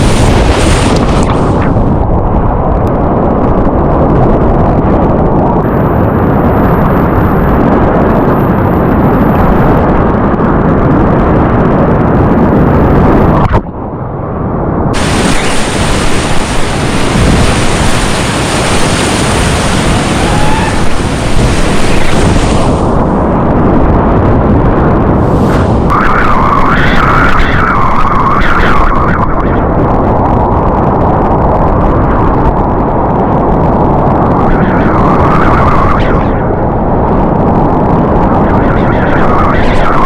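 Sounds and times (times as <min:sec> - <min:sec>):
whitewater rapids rushing: 0:15.0 - 0:22.9.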